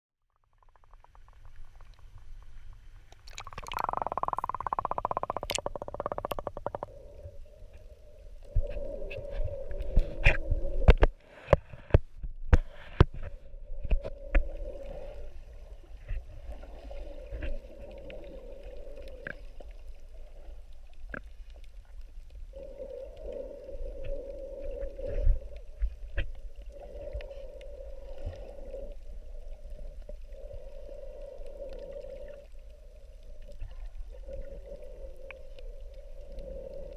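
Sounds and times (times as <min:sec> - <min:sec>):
underwater hum: 0:00.2 - 0:36.9
underwater bubbling rush: 0:00.5 - 0:11.0.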